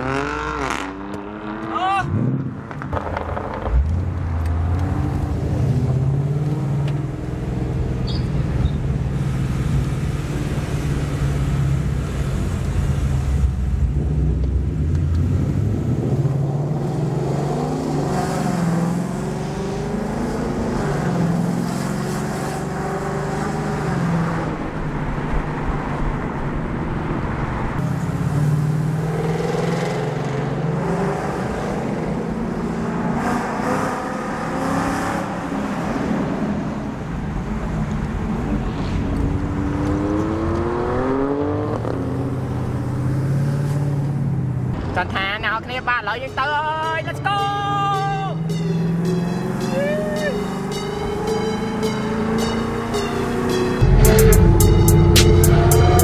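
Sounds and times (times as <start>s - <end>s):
car engine running: 50.4s - 56.0s.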